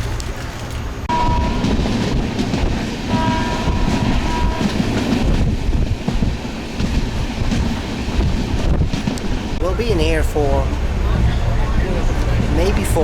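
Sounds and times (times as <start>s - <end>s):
train rumble with wheel clatter: 0.0s - 13.0s
train horn: 1.1s - 2.2s, 3.1s - 5.3s.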